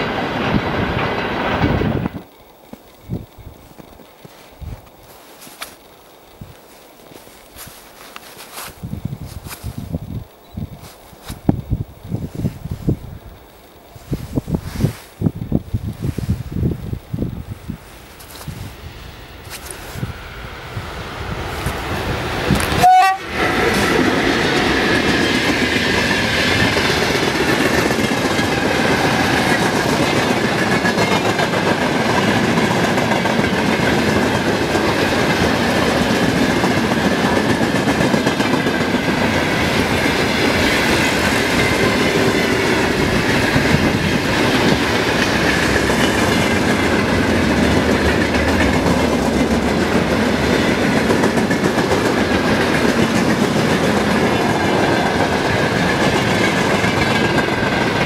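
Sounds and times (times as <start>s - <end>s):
freight train wheels clattering: 0.0s - 58.0s
short train horn tone: 22.7s - 23.9s.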